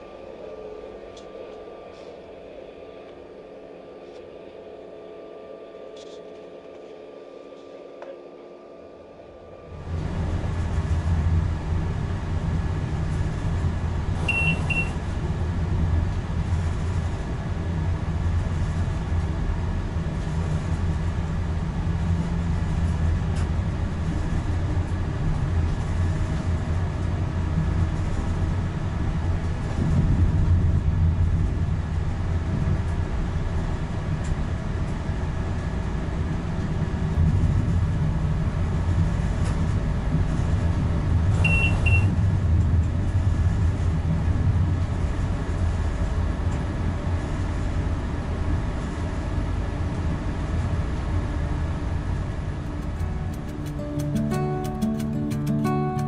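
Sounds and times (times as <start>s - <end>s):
train wheels rumbling on rail: 9.7s - 56.0s
double beep alert: 14.3s - 15.0s, 41.5s - 42.1s.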